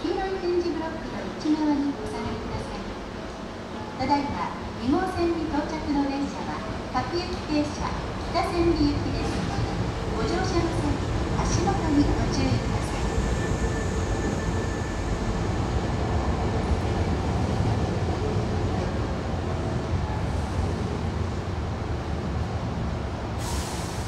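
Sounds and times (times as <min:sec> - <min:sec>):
compressed air hiss: 0:23.4 - 0:24.0.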